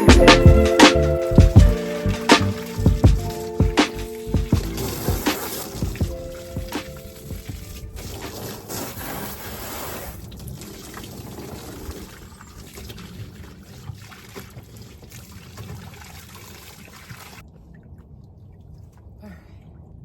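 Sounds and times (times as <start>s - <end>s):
water pouring into a container: 1.7s - 17.4s.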